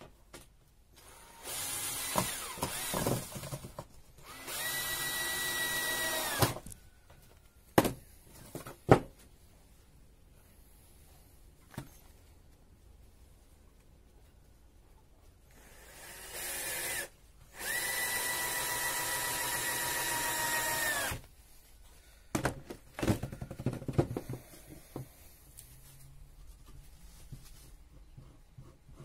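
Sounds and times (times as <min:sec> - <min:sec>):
power drill whining: 0:01.0 - 0:03.6, 0:04.2 - 0:06.8, 0:15.5 - 0:21.3
knocks and clatters of wood: 0:02.2 - 0:04.0, 0:07.8 - 0:09.3, 0:22.3 - 0:25.1.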